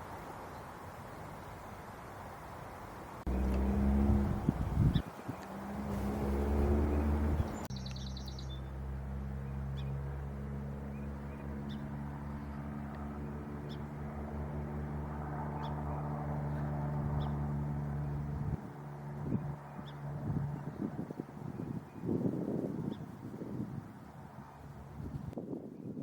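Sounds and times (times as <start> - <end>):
low engine hum: 3.2 - 25.4
bird call: 6.1 - 8.7.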